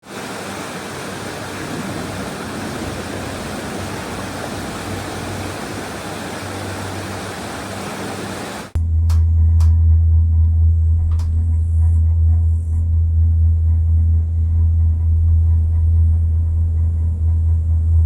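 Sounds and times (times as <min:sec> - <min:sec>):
steady rushing noise: 0:00.0 - 0:08.8
faint low hum: 0:08.8 - 0:18.0.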